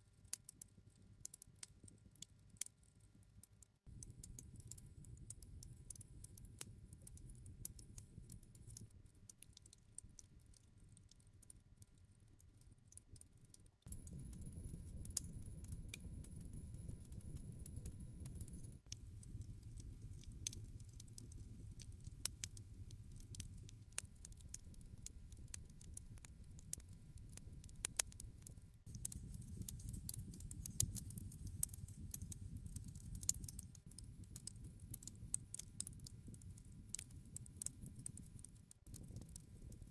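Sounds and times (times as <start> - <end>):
campfire crackling and popping: 13.8 - 39.9
low rumble of flame: 13.9 - 39.9.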